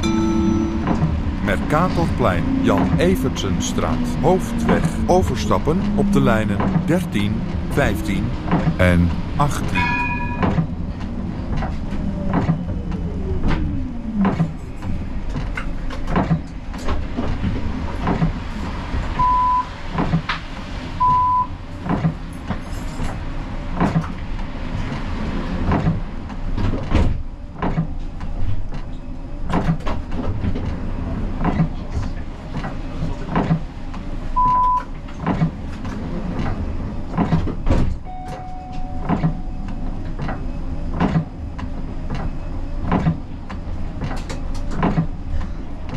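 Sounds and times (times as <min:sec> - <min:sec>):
tram rumbling: 0:00.0 - 0:45.9.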